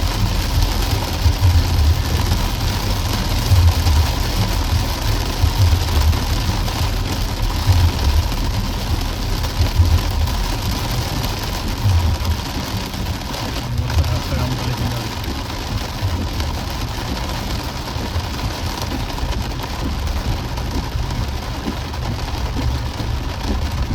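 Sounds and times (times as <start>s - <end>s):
heavy rain hissing: 0.0s - 23.9s
vehicle engine and road rumble: 0.0s - 23.9s.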